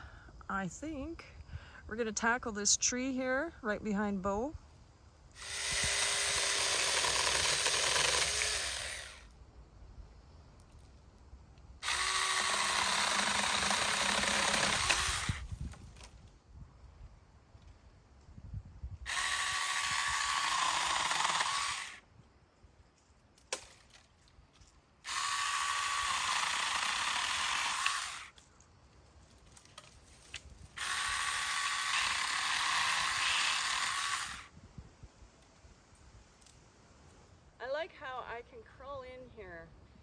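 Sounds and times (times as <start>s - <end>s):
mini chainsaw cutting branches: 5.4s - 9.3s, 11.8s - 16.1s, 19.1s - 22.0s, 25.0s - 28.4s, 29.6s - 34.5s.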